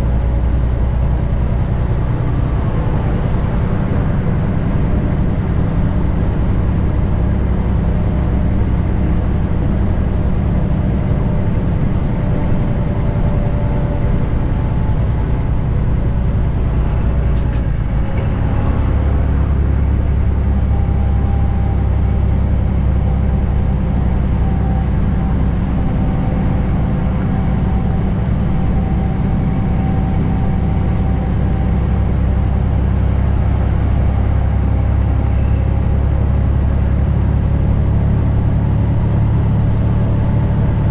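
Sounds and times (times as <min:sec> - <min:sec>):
diesel truck engine running: 0:00.0 - 0:40.9.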